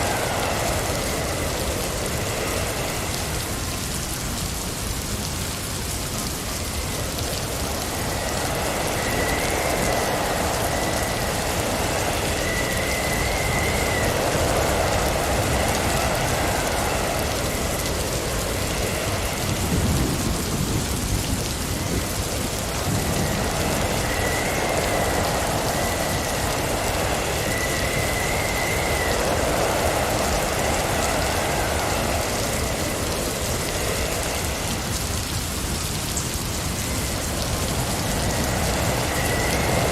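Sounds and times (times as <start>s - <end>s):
faint wavering whistles: 0.0s - 4.1s, 6.5s - 20.6s, 21.6s - 39.9s
blizzard wind howling: 0.0s - 39.9s.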